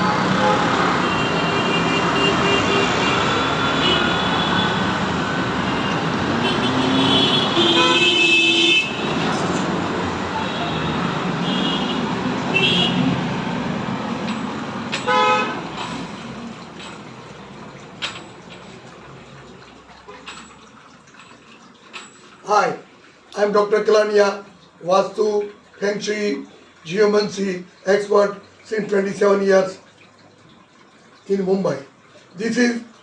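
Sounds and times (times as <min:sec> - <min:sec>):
vehicle horns honking: 0:00.0 - 0:13.5, 0:14.9 - 0:15.8
road traffic noise: 0:00.0 - 0:32.5.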